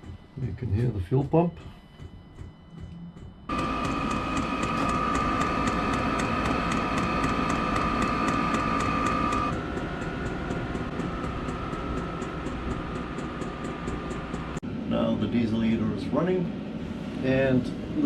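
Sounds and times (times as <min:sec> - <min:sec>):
fuel pump ticking: 0:03.5 - 0:14.6
heater blower whine and air rush: 0:03.5 - 0:18.0.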